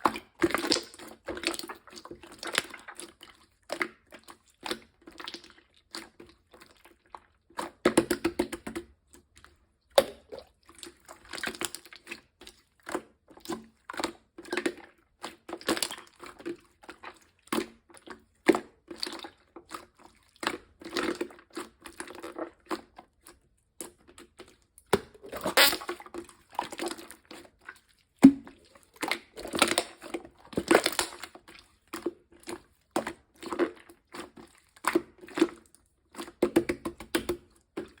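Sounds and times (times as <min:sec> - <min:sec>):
slime squeezed and stretched: 0:25.0 - 0:31.9.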